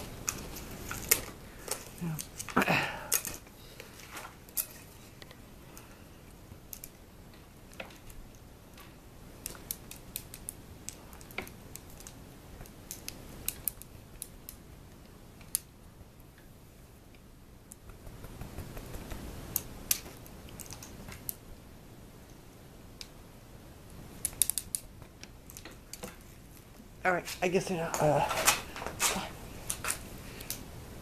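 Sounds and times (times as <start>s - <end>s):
small clicks and taps: 6.6s - 15.7s, 17.1s - 21.4s, 24.2s - 26.7s.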